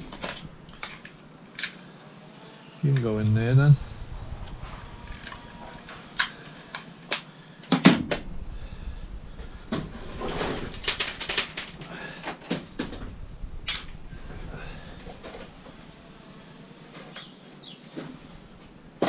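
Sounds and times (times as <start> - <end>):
scrap metal knocks and clatter: 9.7 - 13.1.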